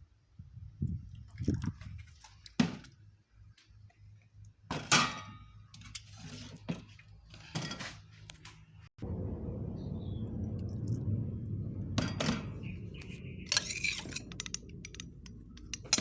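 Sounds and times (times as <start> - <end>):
low hum: 9.0 - 16.0
kitchenware knocking and clinking: 13.5 - 16.0.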